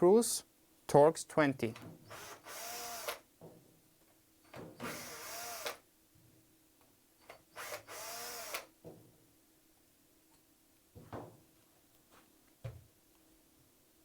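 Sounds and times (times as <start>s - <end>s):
electric screwdriver running: 2.1s - 3.2s, 4.8s - 5.8s, 7.6s - 8.7s.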